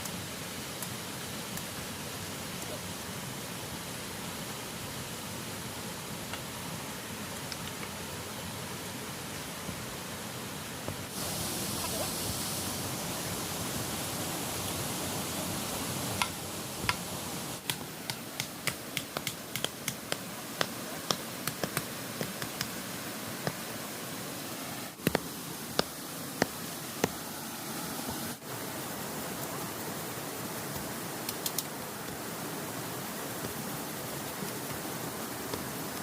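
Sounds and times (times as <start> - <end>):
river water rushing: 0.0 - 36.0
sharp clicks and taps: 17.6 - 22.7.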